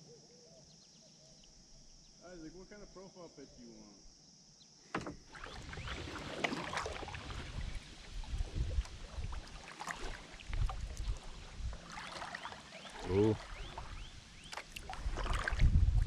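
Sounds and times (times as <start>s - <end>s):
paddle splashing in water: 5.0s - 16.0s.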